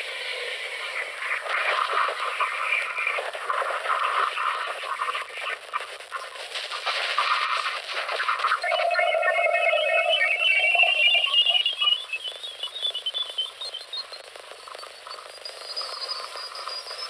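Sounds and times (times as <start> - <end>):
electronic chirping tones: 8.4 - 17.0.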